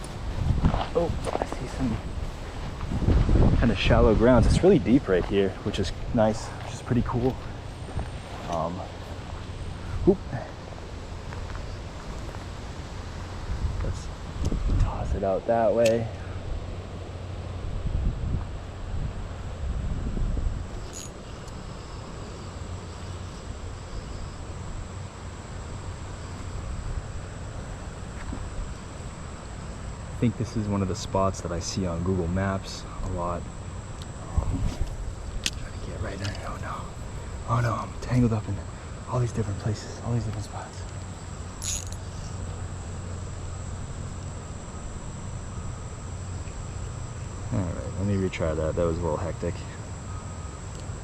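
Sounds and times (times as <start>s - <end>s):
high-pitched insect trill: 0.0s - 51.0s
high-pitched whine: 0.0s - 51.0s.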